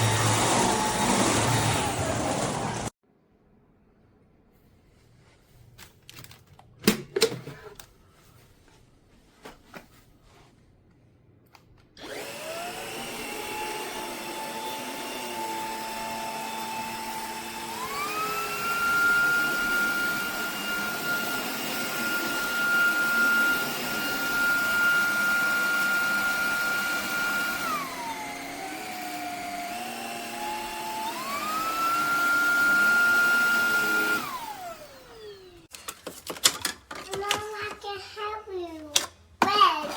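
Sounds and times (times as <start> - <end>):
stick vacuum motor whine: 0.0 - 2.9, 12.0 - 35.7
handling clicks and knocks: 35.7 - 37.8.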